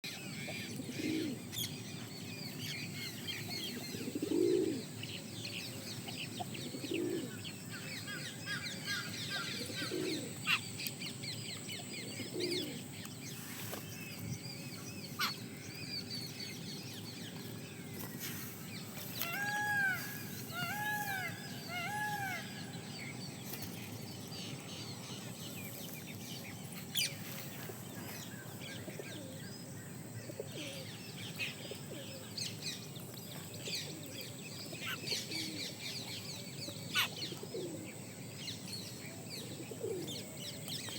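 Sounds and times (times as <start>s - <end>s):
low rounded bird calls: 0.0s - 40.9s
arched bird calls: 0.1s - 29.6s
steady background hiss: 0.1s - 40.9s.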